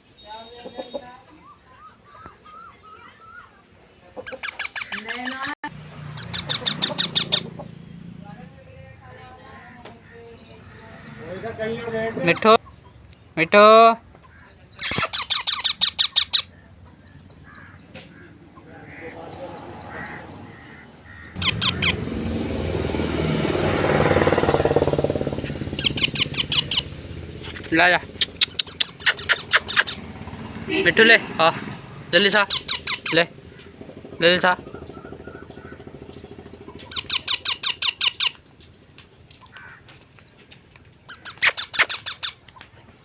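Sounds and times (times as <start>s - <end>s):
parakeet squawking: 4.2s - 7.8s, 11.8s - 12.6s, 14.8s - 16.6s, 19.9s - 22.1s, 25.7s - 33.3s, 36.8s - 38.4s, 41.1s - 42.4s
parrot screeching: 4.4s - 7.6s, 14.8s - 16.6s, 19.9s - 22.0s, 25.8s - 26.9s, 28.4s - 30.1s, 32.2s - 33.2s, 36.9s - 38.4s, 41.1s - 42.4s
passing motor vehicle engine: 5.6s - 12.6s, 16.5s - 38.3s.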